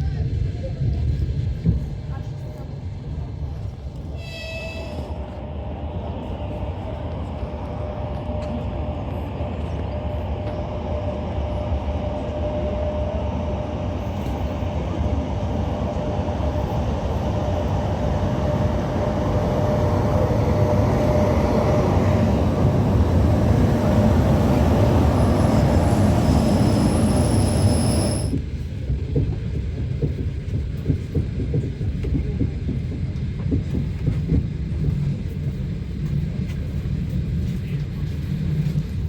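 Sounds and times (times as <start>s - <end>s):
train wheels rumbling on rails: 0.0s - 39.0s
thin high whine: 23.9s - 28.4s.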